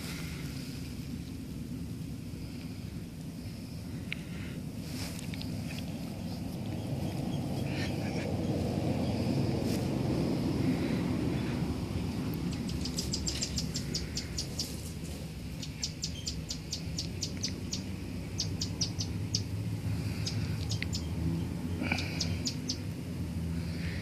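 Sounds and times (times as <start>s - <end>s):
low rumble with faint hum: 0.0s - 24.0s
small bird chirping: 5.0s - 9.8s, 10.5s - 23.0s.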